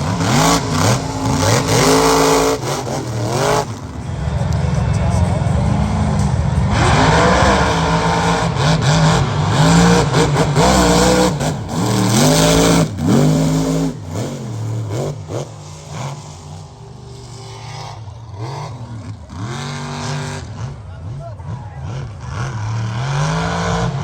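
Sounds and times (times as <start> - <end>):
truck engines revving hard: 0.0 - 24.0.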